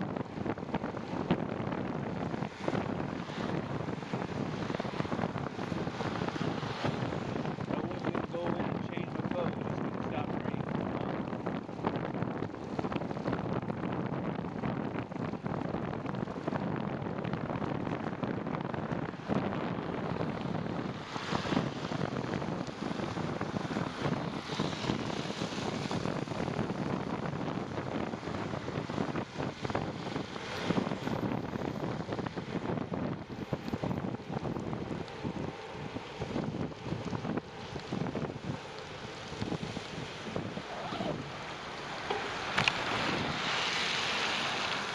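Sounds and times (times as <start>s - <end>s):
wind rushing over microphone: 0.0s - 44.9s
small ticks and crackles: 20.2s - 43.1s.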